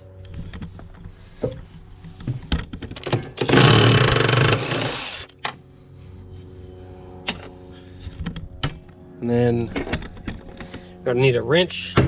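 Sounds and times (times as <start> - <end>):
cordless power tool running: 3.4 - 5.3.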